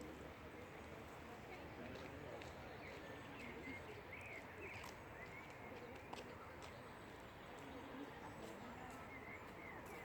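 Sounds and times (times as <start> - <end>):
small birds chirping: 2.4 - 10.0.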